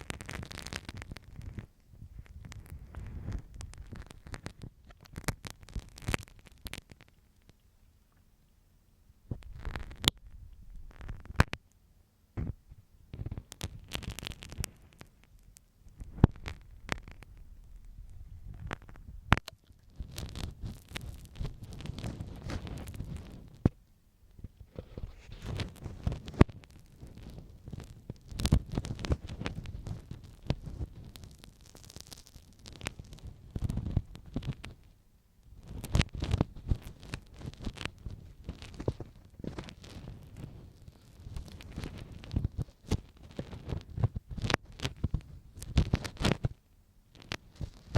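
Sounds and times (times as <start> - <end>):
ear pick scraping: 0.0 - 7.2, 12.4 - 23.8, 24.4 - 34.8.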